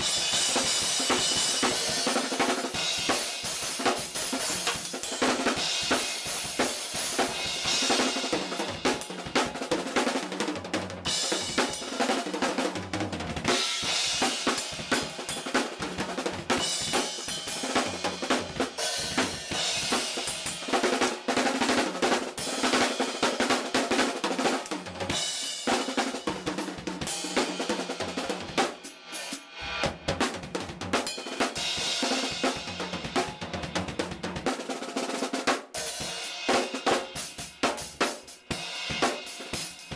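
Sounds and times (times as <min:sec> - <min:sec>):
cymbals: 0:00.0 - 0:09.4, 0:13.5 - 0:21.3, 0:27.0 - 0:30.0
snare drum: 0:00.0 - 0:39.9.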